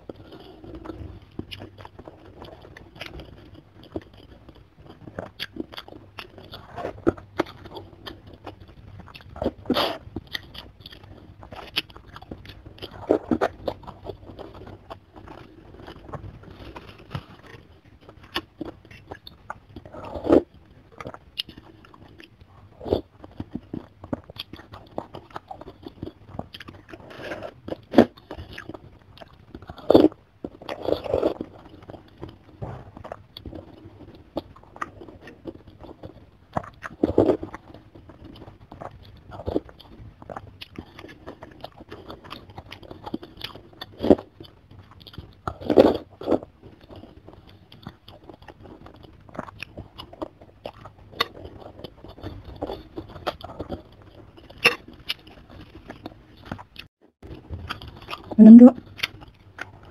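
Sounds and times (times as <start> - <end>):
wet chewing and biting: 0.0 - 59.9
clicky mouth sounds: 57.8 - 59.9.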